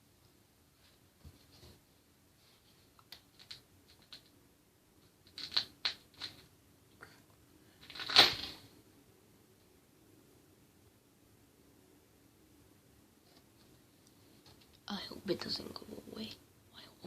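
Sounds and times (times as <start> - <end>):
light clicks and rustles: 0.8 - 4.4.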